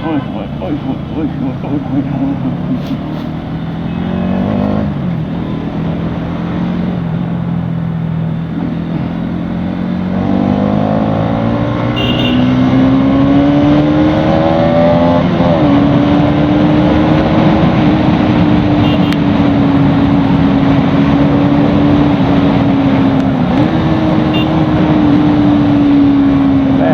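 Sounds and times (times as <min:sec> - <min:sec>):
wind and road noise: 0:00.0 - 0:26.9.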